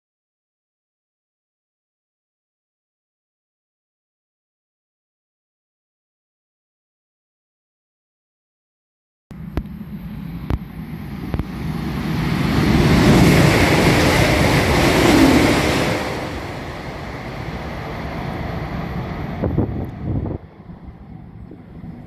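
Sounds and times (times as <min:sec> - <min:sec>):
high-speed train rushing by: 0:09.3 - 0:22.0.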